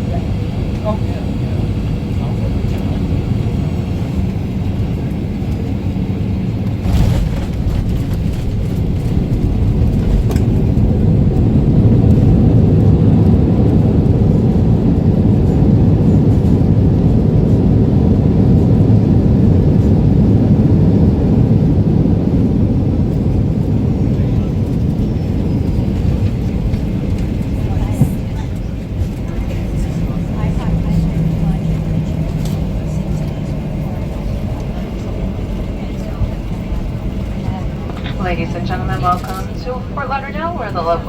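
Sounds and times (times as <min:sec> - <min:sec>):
airliner cabin engine rumble: 0:00.0 - 0:41.0.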